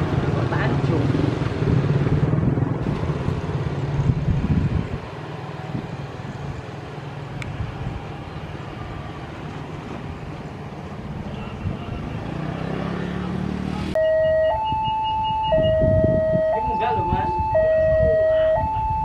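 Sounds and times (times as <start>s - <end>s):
two-tone level crossing alarm: 14.0s - 19.0s.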